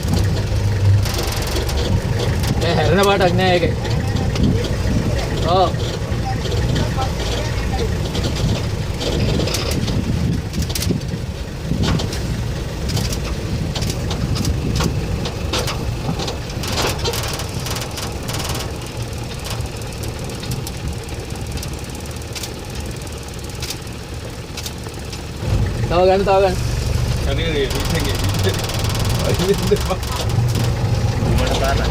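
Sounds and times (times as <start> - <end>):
scattered clicks and knocks: 0.0 - 25.7, 26.9 - 31.9
engine idling: 0.0 - 31.9.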